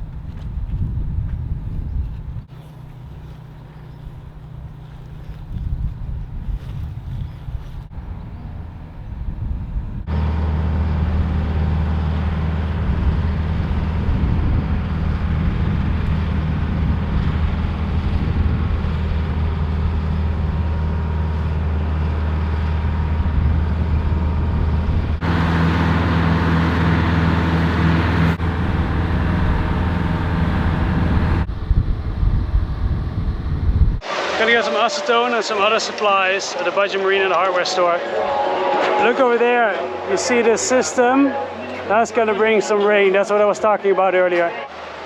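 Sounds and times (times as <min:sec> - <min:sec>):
vehicle engine drone: 0:00.0 - 0:42.6
road noise: 0:00.0 - 0:45.0.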